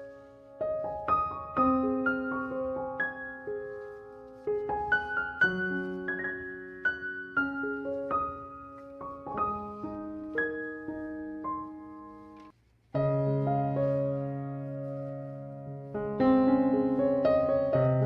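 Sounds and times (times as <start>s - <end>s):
gentle solo piano: 0.0s - 18.0s.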